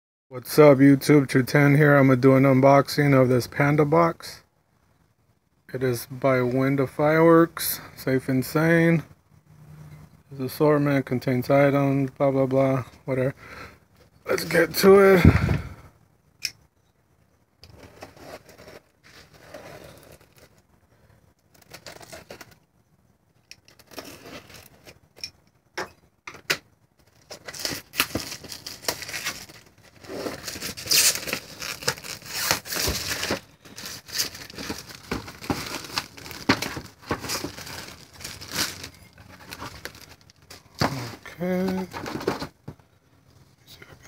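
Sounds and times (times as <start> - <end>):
packaging being torn and crinkled: 21.5 - 22.6, 27.1 - 41.1.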